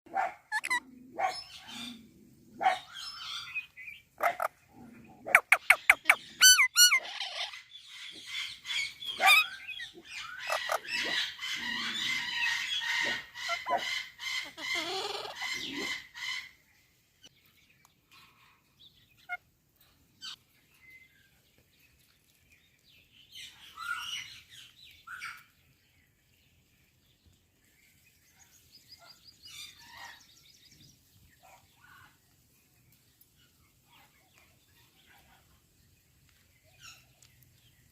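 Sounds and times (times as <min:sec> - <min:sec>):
parrot squawking and calling: 0:00.2 - 0:02.0, 0:04.2 - 0:04.6, 0:05.2 - 0:16.5.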